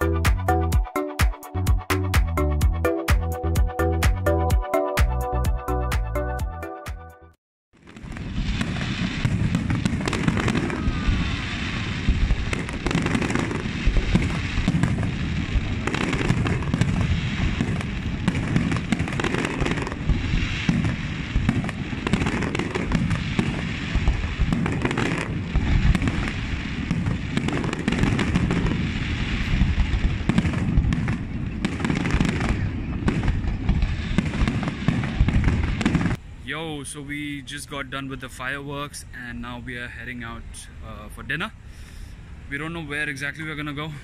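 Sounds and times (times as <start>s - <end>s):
fireworks bangs: 7.8s - 36.3s.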